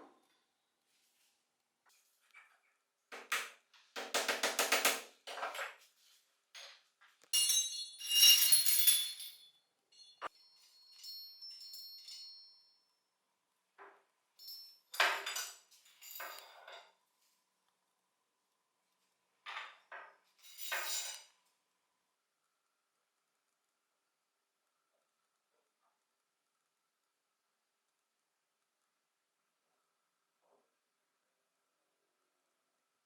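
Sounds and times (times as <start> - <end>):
metal parts clinking and rattling: 7.4 - 12.5, 14.4 - 16.8, 20.4 - 21.2.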